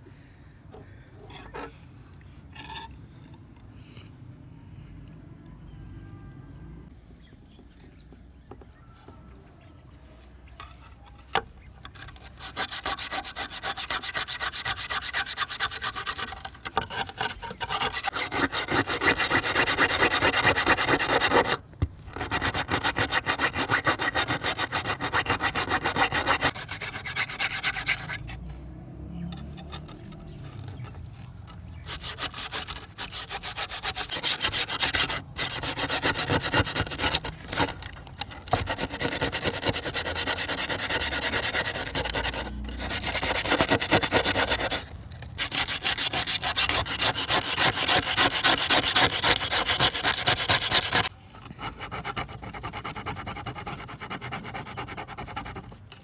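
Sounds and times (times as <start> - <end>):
abrasive scraping on knife: 29.3 - 51.1.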